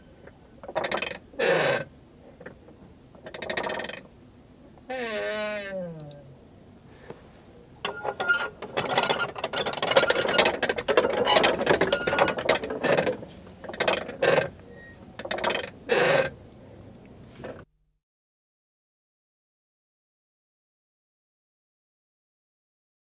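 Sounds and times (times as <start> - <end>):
prayer wheel rattling and creaking: 0.6 - 4.1, 7.8 - 16.4.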